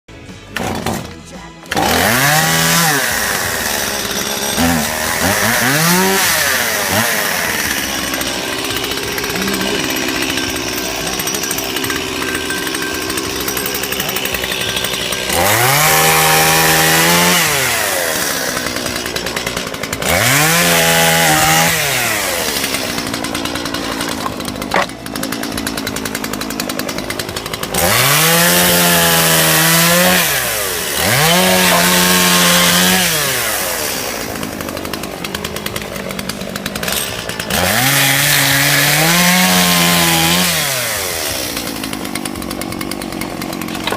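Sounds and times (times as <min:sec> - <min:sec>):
chainsaw engine idling and revving: 0:00.1 - 0:43.9.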